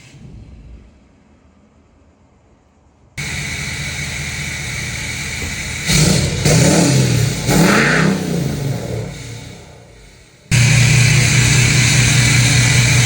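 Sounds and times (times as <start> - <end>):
diesel truck engine revving: 3.2 - 13.0.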